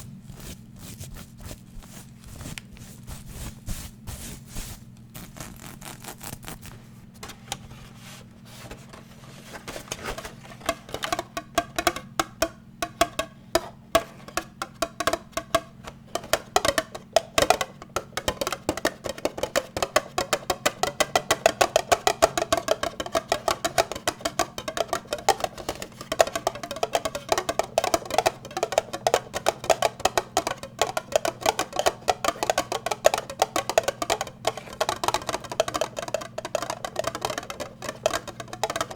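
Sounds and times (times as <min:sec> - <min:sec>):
fast tapping: 0:10.0 - 0:38.9.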